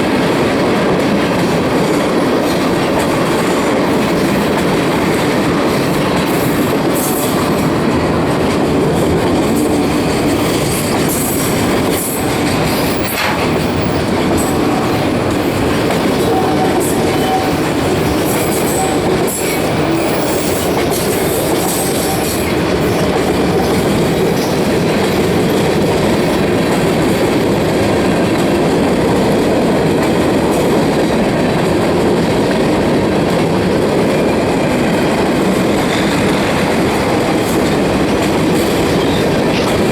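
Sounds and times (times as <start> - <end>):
train wheels rumbling on rail: 0.0 - 39.9
sharp clacks: 10.3 - 13.7
high wheel squeals: 16.2 - 20.8.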